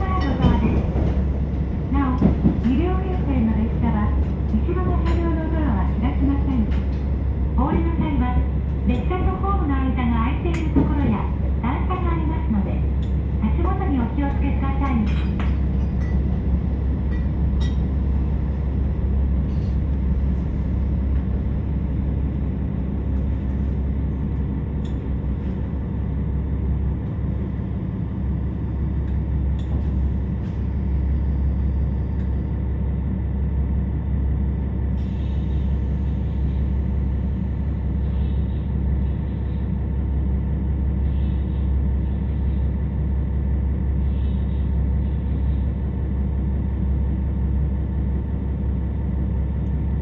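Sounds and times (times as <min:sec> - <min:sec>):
rail-joint clicks: 0:00.0 - 0:26.1, 0:28.6 - 0:31.3, 0:32.0 - 0:32.6
train wheels on rails: 0:00.0 - 0:33.1
diesel engine drone: 0:00.0 - 0:50.0.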